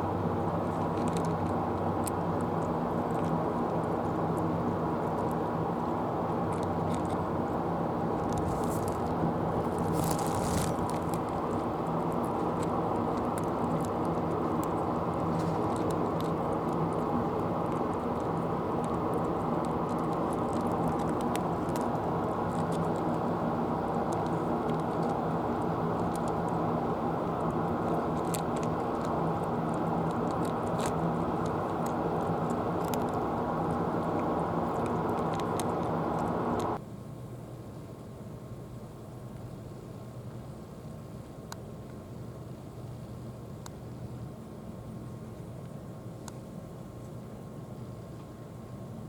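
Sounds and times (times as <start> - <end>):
low motor hum: 0.0 - 36.8.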